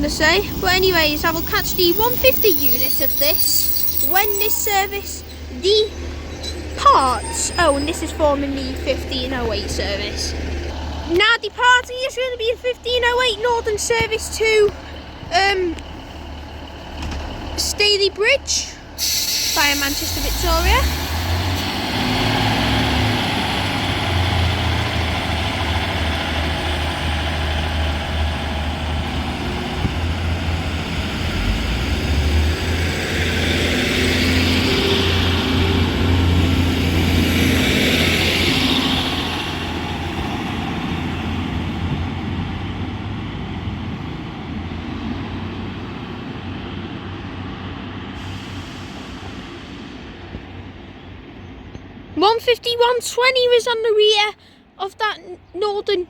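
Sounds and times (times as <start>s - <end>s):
train diesel engines droning: 0.0s - 56.0s
rushing noise: 30.4s - 40.8s.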